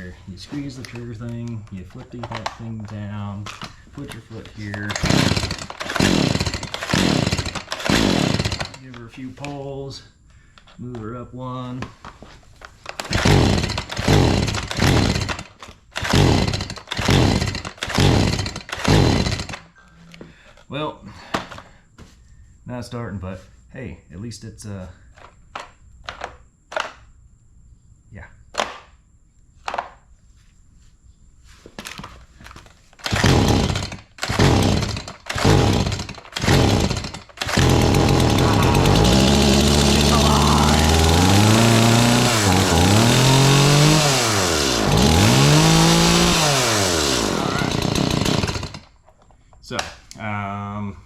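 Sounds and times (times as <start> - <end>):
chainsaw recoil starter pulls: 0.7 - 9.6, 12.8 - 19.6, 32.6 - 49.0
engine cranking: 2.2 - 9.1, 12.9 - 19.6, 33.0 - 49.0.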